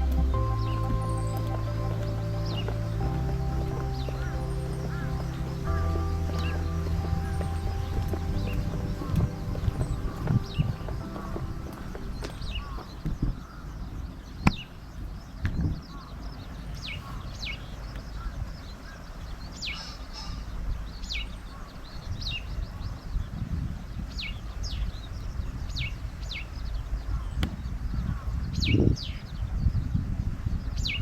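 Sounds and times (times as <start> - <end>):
low rumble: 0.0 - 13.5.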